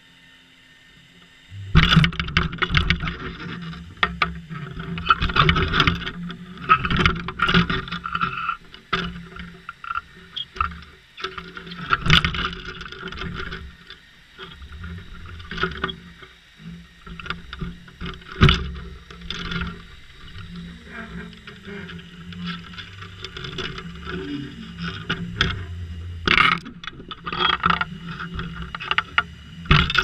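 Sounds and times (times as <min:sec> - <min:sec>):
boat engine humming: 0:00.7 - 0:30.0
rushing water: 0:09.9 - 0:30.0.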